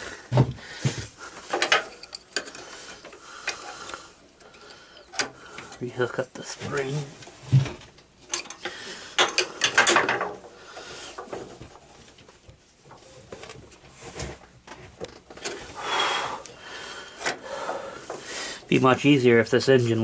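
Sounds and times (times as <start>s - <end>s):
tools clicking and scraping on metal: 1.4s - 5.8s, 6.7s - 11.9s, 14.7s - 18.3s.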